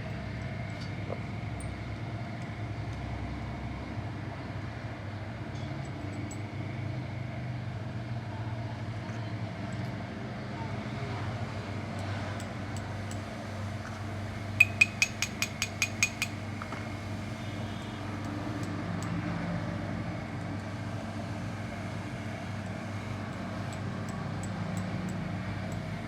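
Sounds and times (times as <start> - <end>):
low mechanical hum: 0.0 - 26.0
metal tool tapping on metal: 14.6 - 16.8.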